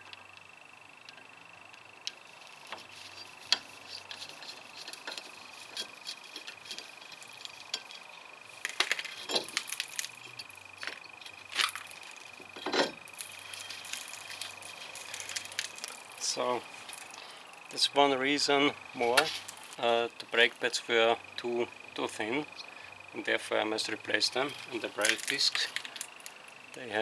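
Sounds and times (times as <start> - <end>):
tools and metal parts clinking: 2.7 - 17.8, 24.2 - 26.5
metal parts clattering: 3.5 - 17.2, 24.4 - 26.4.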